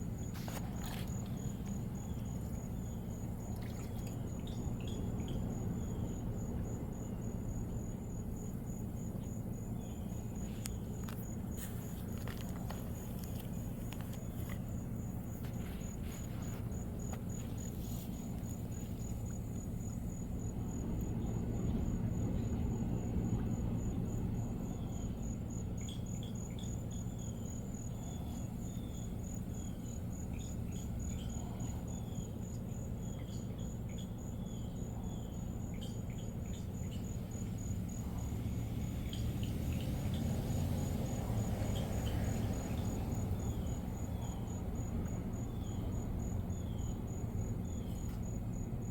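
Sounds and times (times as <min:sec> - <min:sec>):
cricket chirping: 0:00.0 - 0:48.9.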